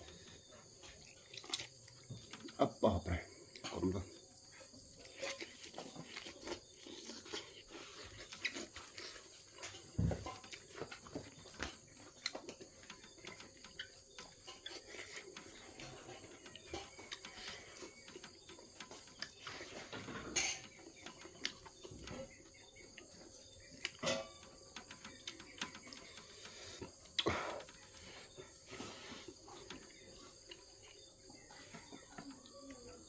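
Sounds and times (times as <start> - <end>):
person chewing with wet clicks: 0.9 - 2.6, 4.8 - 19.7.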